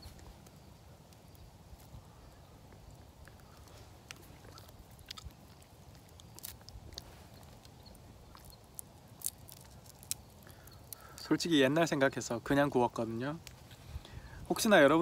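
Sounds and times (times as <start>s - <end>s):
charred skin crackling: 0.0s - 15.0s
person chewing: 2.7s - 11.2s.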